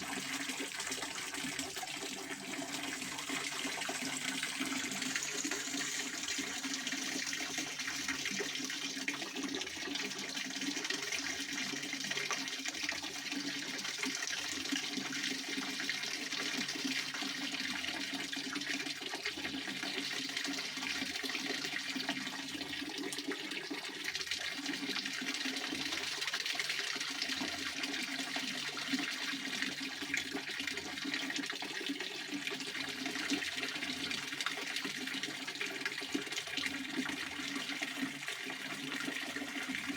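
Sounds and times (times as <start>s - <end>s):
fountain water splashing: 2.3s - 8.3s.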